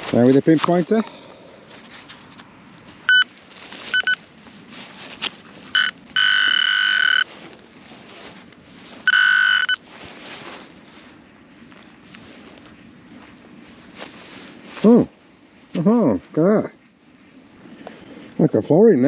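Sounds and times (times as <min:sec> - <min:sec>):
soil rustling: 0:00.0 - 0:18.6
pinpointer beeps and tone: 0:03.1 - 0:03.3, 0:03.9 - 0:04.2, 0:05.7 - 0:07.3, 0:09.1 - 0:09.8.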